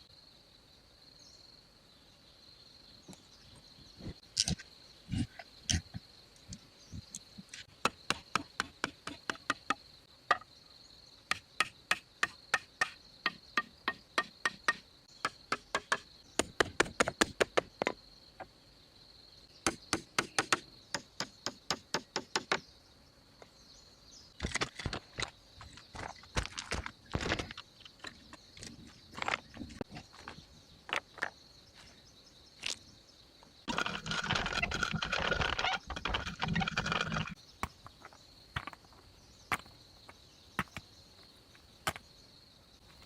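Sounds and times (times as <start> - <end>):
insects buzzing: 0.0 - 43.0
hand tool striking wood: 7.6 - 10.5, 11.3 - 18.0, 19.6 - 22.6.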